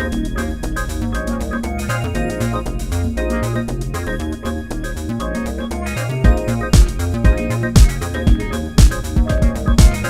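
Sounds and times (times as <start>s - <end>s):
synthesizer notes: 1.2s - 10.0s
heavy kick-drum beat: 6.2s - 10.0s.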